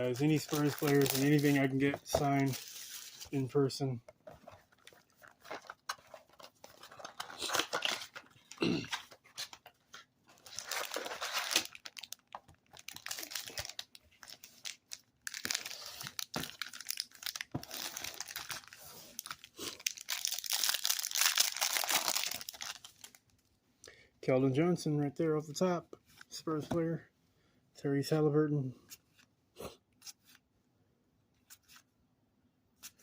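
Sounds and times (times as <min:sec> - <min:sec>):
plastic wrappers tearing and crinkling: 0:00.2 - 0:03.2, 0:06.8 - 0:08.6, 0:10.4 - 0:23.3.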